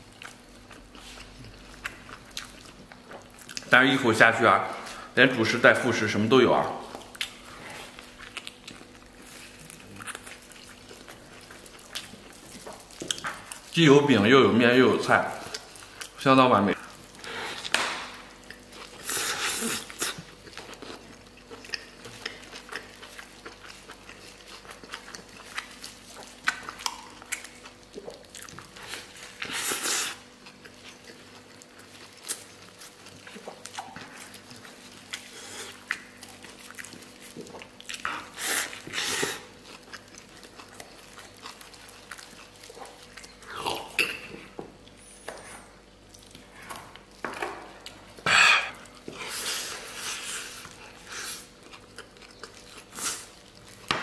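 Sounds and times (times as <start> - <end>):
person chewing food: 0.0 - 3.7, 6.6 - 13.8, 15.3 - 54.0
lip-smacking: 24.8 - 28.7.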